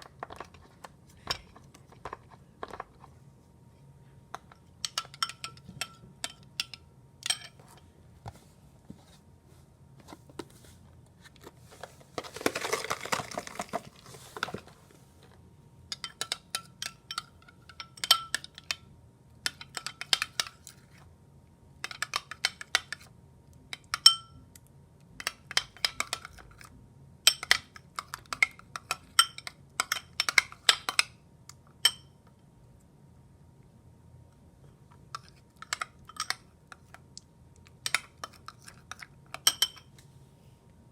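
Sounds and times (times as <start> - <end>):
utensil clinking against dish: 4.4 - 7.6, 15.9 - 18.8, 37.8 - 39.9.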